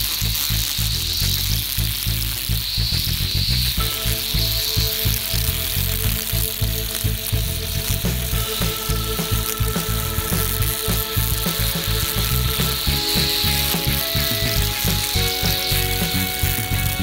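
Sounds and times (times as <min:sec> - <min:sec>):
held tones: 0:00.0 - 0:17.0
music with steady beat: 0:03.5 - 0:17.0.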